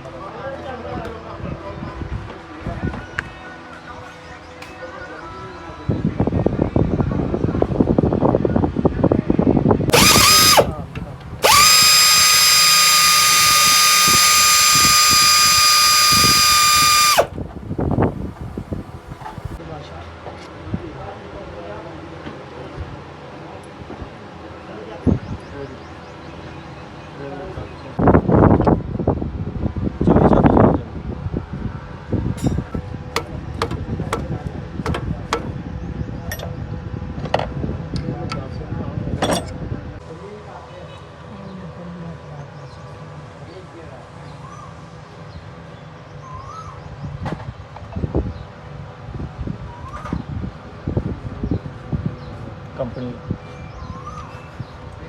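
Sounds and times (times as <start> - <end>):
power drill whining: 9.9 - 10.8, 11.4 - 17.4, 33.2 - 35.5
hand tool tapping metal: 33.2 - 35.5.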